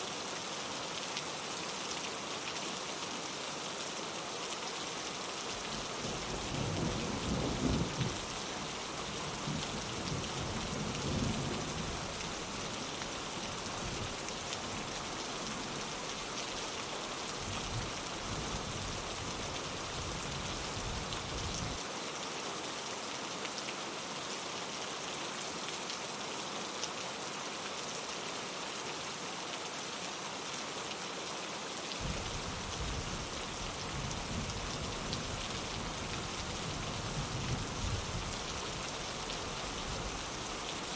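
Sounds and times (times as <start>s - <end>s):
rain pattering on a window: 5.3s - 24.6s, 25.6s - 40.9s
low thunder rumbling: 5.8s - 8.3s.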